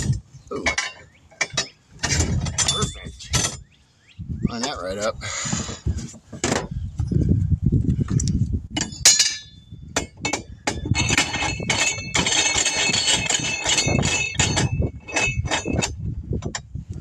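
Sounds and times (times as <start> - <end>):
metal tools clinking: 0.6 - 3.7, 8.8 - 16.6.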